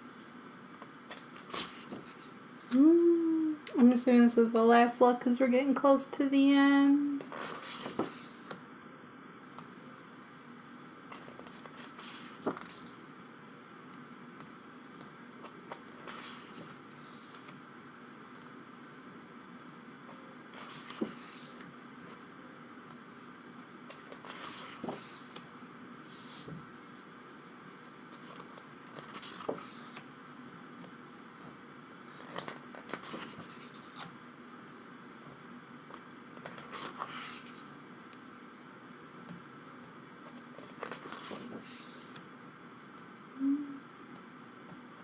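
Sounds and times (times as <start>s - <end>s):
paper pages rustling: 0.8s - 2.4s, 7.3s - 8.6s, 11.1s - 13.1s, 15.4s - 17.6s, 20.6s - 22.2s, 23.9s - 25.5s, 26.1s - 27.1s, 28.1s - 30.1s, 32.1s - 34.1s, 35.9s - 37.8s, 40.3s - 42.2s.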